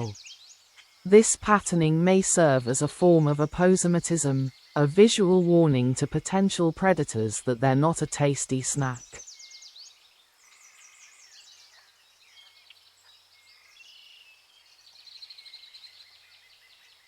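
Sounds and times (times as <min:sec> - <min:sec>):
birds chirping and whistling: 0:09.0 - 0:17.0.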